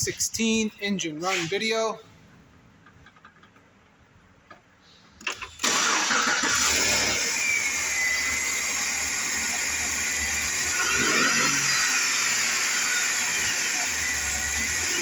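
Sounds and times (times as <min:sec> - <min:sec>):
car engine starting and running: 0:05.2 - 0:15.0.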